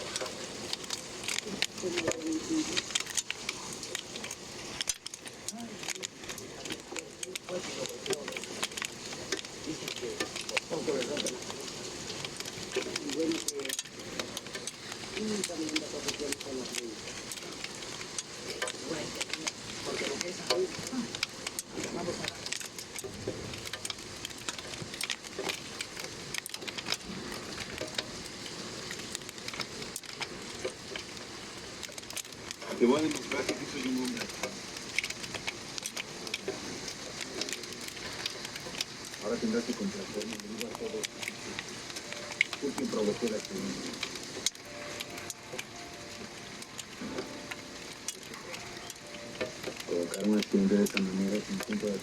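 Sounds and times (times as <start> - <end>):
faint television voice: 0.0 - 23.0, 32.6 - 34.7, 35.7 - 46.2, 48.1 - 52.0
hailstones tapping: 0.0 - 52.0
heavy rain hissing: 0.0 - 52.0.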